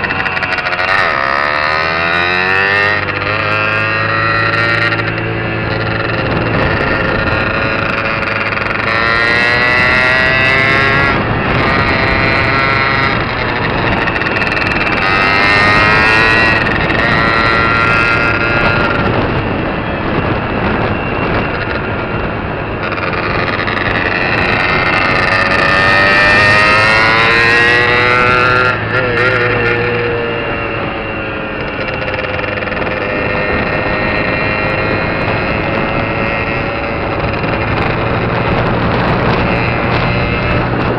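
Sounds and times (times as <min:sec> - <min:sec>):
two-stroke engine accelerating: 0:00.0 - 0:40.9.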